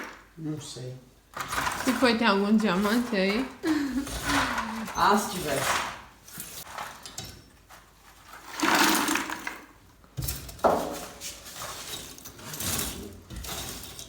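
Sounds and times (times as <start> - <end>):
metal scraping in fireplace ash: 1.3 - 9.6, 10.2 - 14.0.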